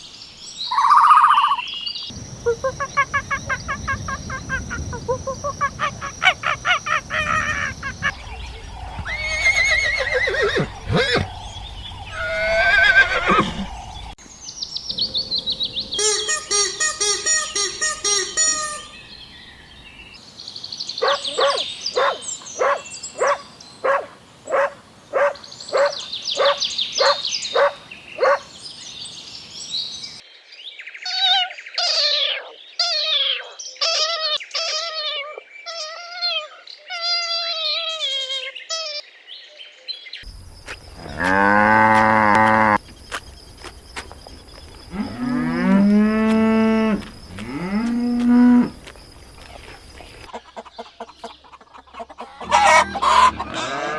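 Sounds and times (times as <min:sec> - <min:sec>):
high chirping calls: 0:00.5 - 0:20.2, 0:20.8 - 0:29.2
pulsing animal calls: 0:02.4 - 0:14.2
cattle mooing: 0:41.0 - 0:42.8.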